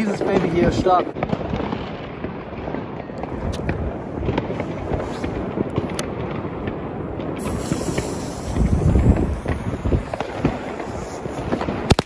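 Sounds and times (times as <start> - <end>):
firecrackers crackling and popping: 0.0 - 12.0
firework fuse fizzing: 3.4 - 12.0.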